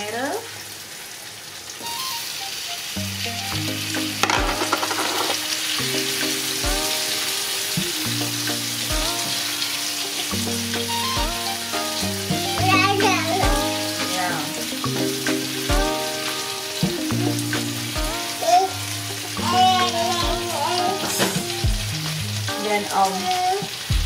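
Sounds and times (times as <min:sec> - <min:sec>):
tomatoes sizzling in frying pan: 0:00.0 - 0:24.0
background music with beat: 0:03.3 - 0:22.3.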